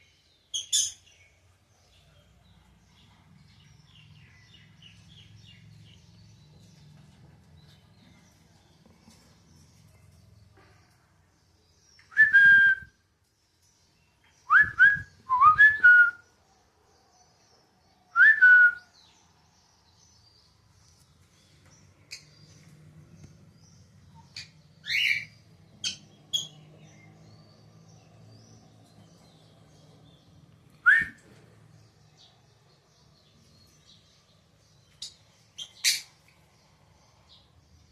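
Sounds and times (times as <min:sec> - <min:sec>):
whistled bird calls: 0:30.8 - 0:31.2.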